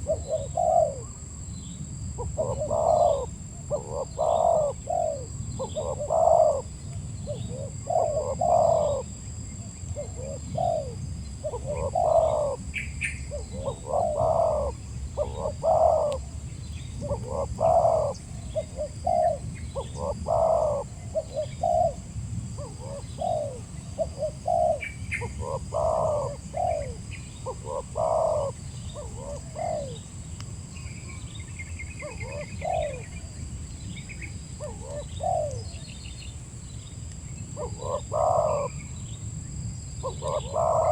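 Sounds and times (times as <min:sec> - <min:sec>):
dove cooing: 0:00.0 - 0:01.3, 0:02.1 - 0:30.0, 0:32.0 - 0:33.3, 0:34.6 - 0:35.8, 0:37.6 - 0:38.9, 0:40.0 - 0:40.9
small birds chirping: 0:00.0 - 0:22.0, 0:40.0 - 0:40.9.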